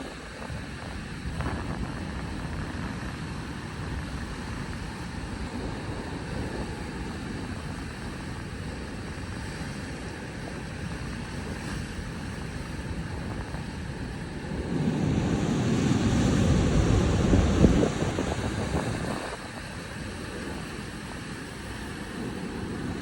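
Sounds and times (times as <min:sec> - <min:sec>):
wind buffeting the microphone: 0:00.0 - 0:23.0
outdoor rushing rumble: 0:13.1 - 0:23.0.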